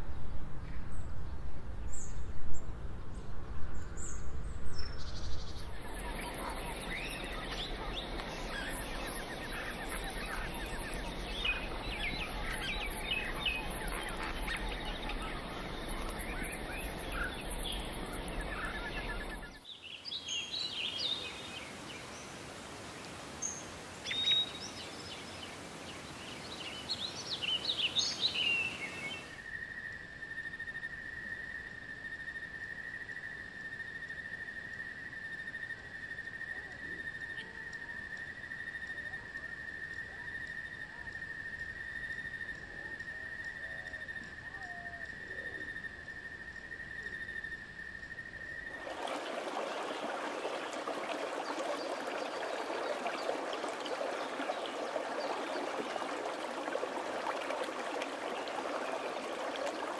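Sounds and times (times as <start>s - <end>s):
chorus of bird chirps: 4.8s - 21.4s
bird calls: 5.6s - 19.6s, 48.7s - 59.9s.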